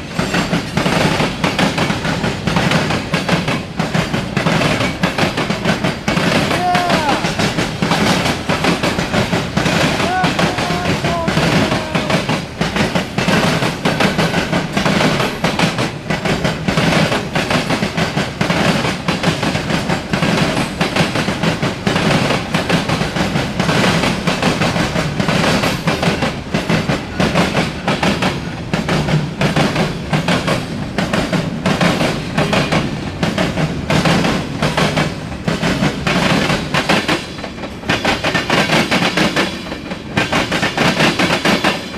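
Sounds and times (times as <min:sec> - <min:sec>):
freight train cars rolling: 0:00.0 - 0:41.9.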